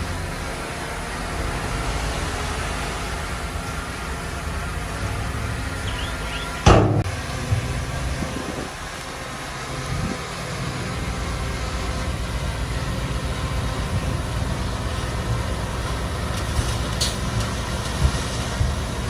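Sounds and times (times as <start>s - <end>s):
heavy diesel engine rumbling: 0.0s - 19.0s
thump: 6.7s - 7.7s.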